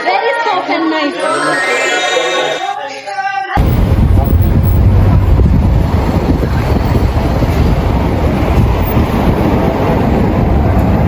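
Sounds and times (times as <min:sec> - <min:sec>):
wind buffeting microphone: 0:03.6 - 0:11.0.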